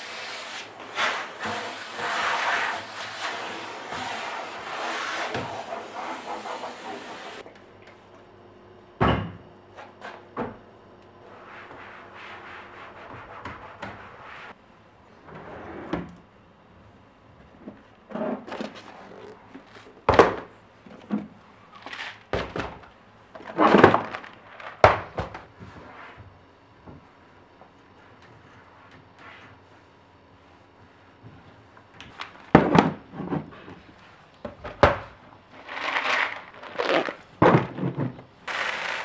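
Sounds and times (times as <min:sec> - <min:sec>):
kitchen items knocking and clunking: 0:23.4 - 0:25.5, 0:34.5 - 0:39.0.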